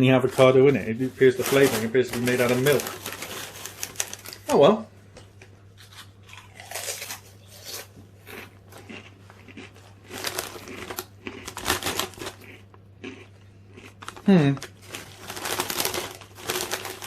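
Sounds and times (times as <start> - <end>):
crisp packet crinkling: 0.4 - 4.6, 8.3 - 13.2, 14.0 - 17.0
chewing crunchy chips: 5.8 - 17.0.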